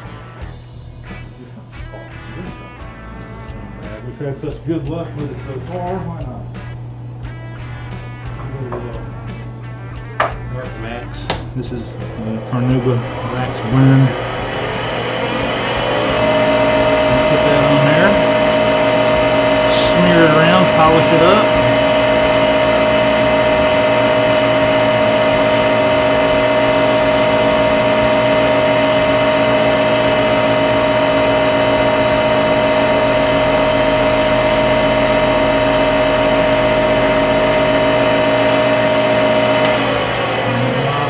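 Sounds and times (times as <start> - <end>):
wood lathe motor whine: 0.0 - 0.8, 11.2 - 41.0.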